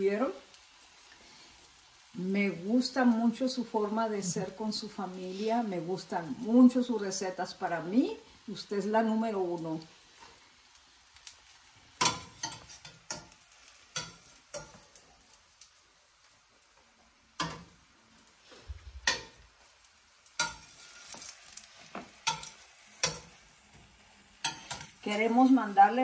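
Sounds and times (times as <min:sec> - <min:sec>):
patties sizzling in oil: 0:00.0 - 0:26.0
metal spatula scraping pan: 0:12.0 - 0:13.3, 0:20.4 - 0:23.4, 0:24.4 - 0:25.0.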